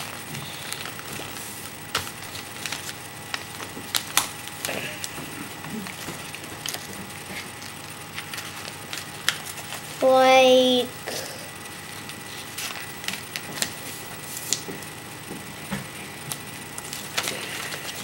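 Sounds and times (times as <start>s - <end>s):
paper rustling: 0.0s - 5.2s, 5.8s - 10.1s, 11.7s - 14.8s, 16.3s - 18.0s
paper crackling: 0.0s - 10.2s, 11.7s - 14.9s, 16.2s - 18.0s.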